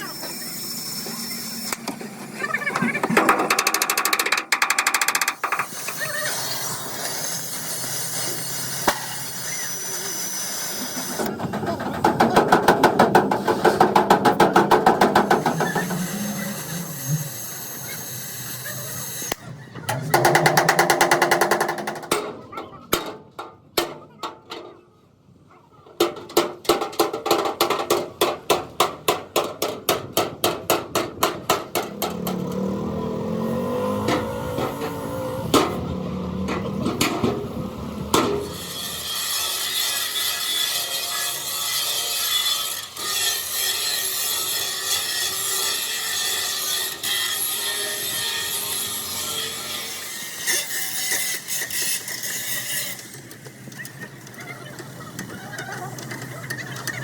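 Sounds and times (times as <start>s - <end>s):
power tool working metal: 0.0s - 11.4s, 14.8s - 21.2s, 31.8s - 57.0s.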